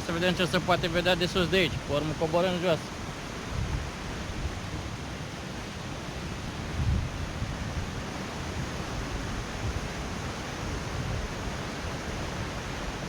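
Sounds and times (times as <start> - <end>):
waterfall rushing: 0.0 - 4.1
wind rumble on microphone: 0.0 - 13.0.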